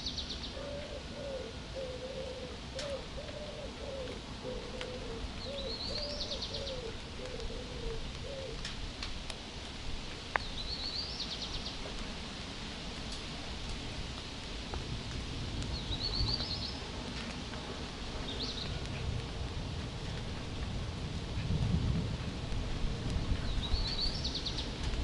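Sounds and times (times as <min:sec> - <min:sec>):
songbird trilling song: 0:00.0 - 0:08.6, 0:10.4 - 0:11.8, 0:23.4 - 0:24.8
background hiss: 0:00.0 - 0:25.0
low dove coos: 0:00.5 - 0:08.8.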